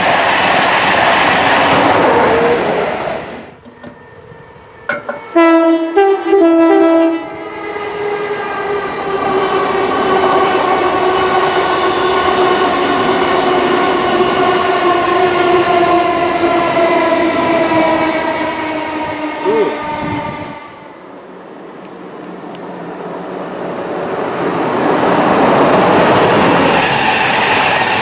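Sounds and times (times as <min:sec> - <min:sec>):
train passing at speed: 0:00.0 - 0:28.0
wheels rushing on rail: 0:00.0 - 0:28.0
train two-tone horn: 0:05.0 - 0:07.7, 0:18.2 - 0:21.0.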